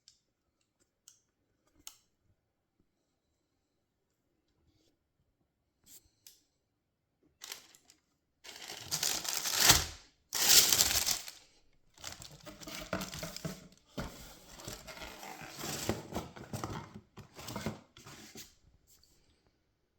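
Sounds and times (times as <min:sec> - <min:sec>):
paper crinkling and rustling: 0:07.4 - 0:11.4, 0:12.0 - 0:18.4.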